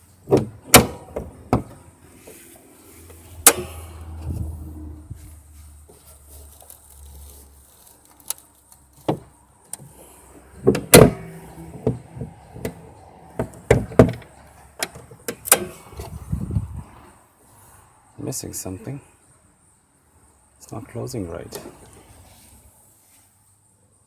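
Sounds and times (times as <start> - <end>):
car hood metal thumps and clunks: 0.2 - 1.9, 9.0 - 9.3, 10.6 - 16.3.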